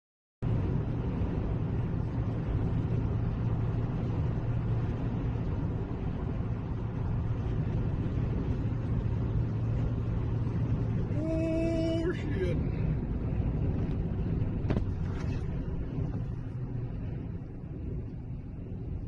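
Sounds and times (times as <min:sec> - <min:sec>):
vehicle engine and road noise: 0:00.4 - 0:19.0.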